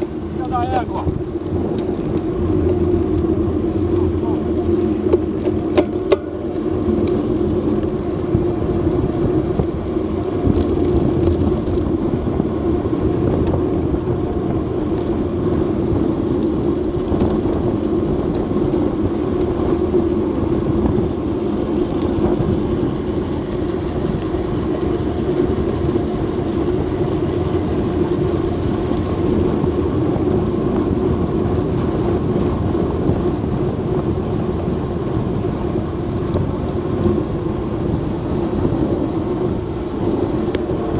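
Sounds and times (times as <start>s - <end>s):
constant hum: 0.0s - 40.9s
wind and road noise on microphone: 0.0s - 40.9s.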